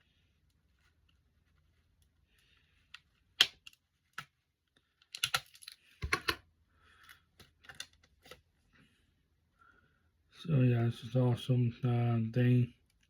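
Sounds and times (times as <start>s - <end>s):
sharp clicks of items handled: 2.8s - 6.4s, 7.0s - 8.4s.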